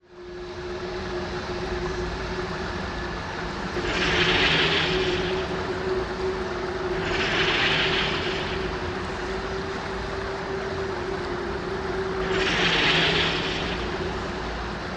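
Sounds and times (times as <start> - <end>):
low rumbling drone: 0.2 - 14.9
swells of hiss: 3.8 - 10.1, 11.2 - 14.9.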